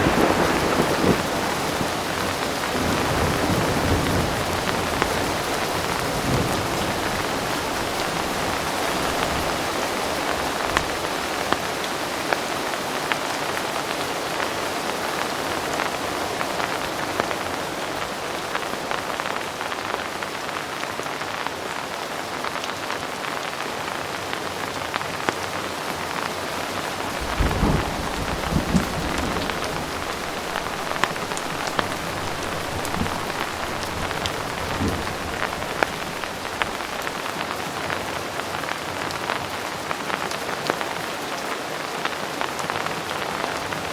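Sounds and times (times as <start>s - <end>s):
distant thunder rumble: 0.0s - 11.4s, 27.1s - 38.0s
heavy rain: 0.0s - 43.9s.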